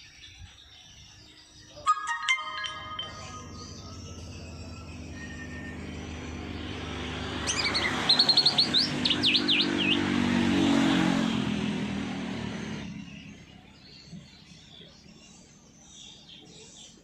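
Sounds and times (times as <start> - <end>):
songbird chirping and whistling: 0.0 - 10.2
motor vehicle passing: 3.1 - 14.2.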